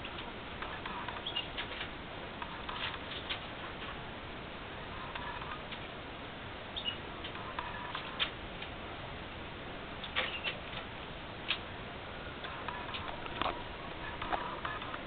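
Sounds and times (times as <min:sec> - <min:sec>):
canaries chirping: 0:01.0 - 0:01.7, 0:06.8 - 0:07.1, 0:10.1 - 0:10.6.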